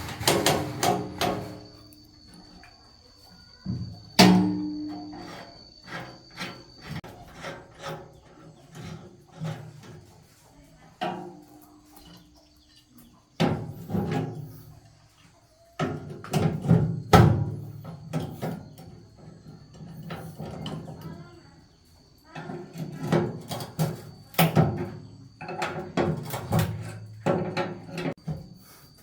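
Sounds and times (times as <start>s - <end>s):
knocks and clatter on metal: 0.0s - 1.8s.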